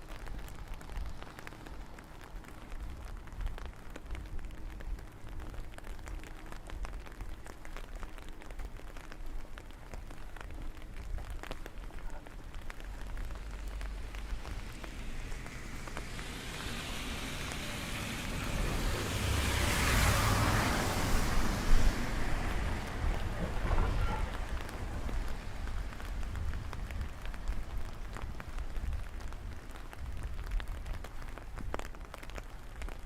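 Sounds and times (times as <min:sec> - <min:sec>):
steady low rumble: 0:00.0 - 0:32.7
raindrops ticking: 0:00.0 - 0:33.0
broad rushing noise: 0:12.2 - 0:27.4.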